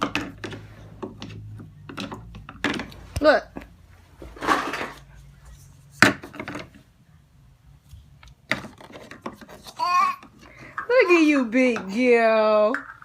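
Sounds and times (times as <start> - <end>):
plastic toy pieces knocking and clicking: 0.0 - 3.0, 8.4 - 10.9, 11.6 - 13.0.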